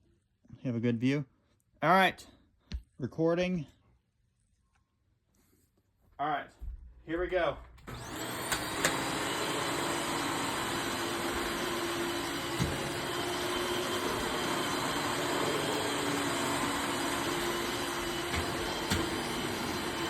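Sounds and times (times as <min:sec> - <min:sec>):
vacuum cleaner running: 0:07.8 - 0:20.0.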